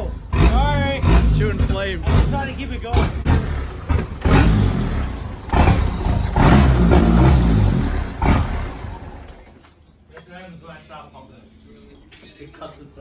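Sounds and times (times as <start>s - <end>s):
car engine revving and stalling: 0.0s - 9.6s.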